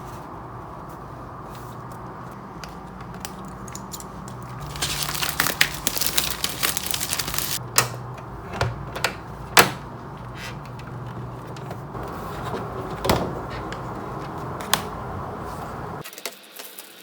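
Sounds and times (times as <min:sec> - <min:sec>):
wrapping crinkling and rustling: 0:04.6 - 0:07.6.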